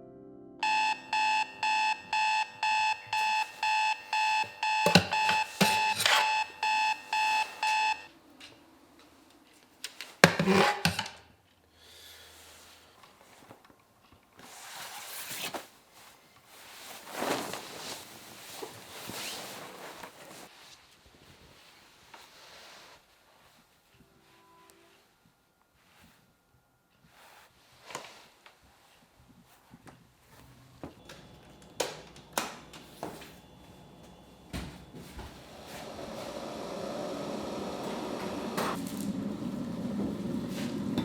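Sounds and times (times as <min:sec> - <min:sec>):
alarm clock beeping: 0:00.6 - 0:08.1
soft rustling: 0:14.4 - 0:24.0.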